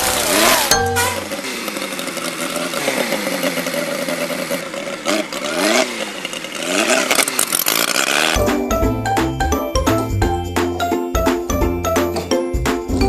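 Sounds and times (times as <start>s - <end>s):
music with deep bass line: 8.4s - 13.0s.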